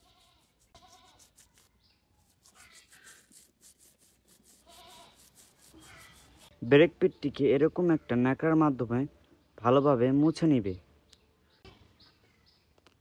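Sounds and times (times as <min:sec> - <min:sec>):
animal bleating faintly: 0:00.0 - 0:01.3, 0:04.6 - 0:06.3.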